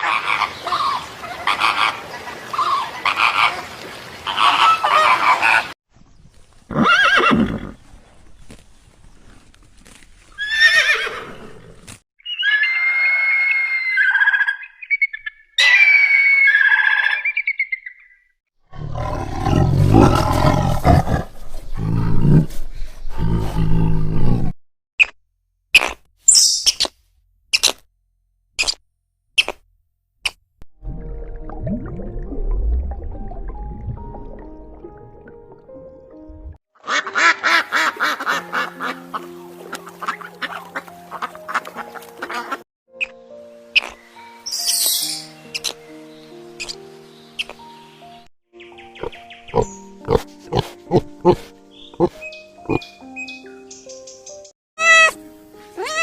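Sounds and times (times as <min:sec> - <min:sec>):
horse whinnying: 0:06.7 - 0:07.8, 0:10.4 - 0:14.6
repeated animal calls: 0:12.2 - 0:20.1, 0:48.9 - 0:53.0, 0:54.8 - 0:55.2, 0:55.8 - 0:56.0
deep rough animal roar: 0:18.7 - 0:24.5
background music: 0:30.8 - 0:56.0.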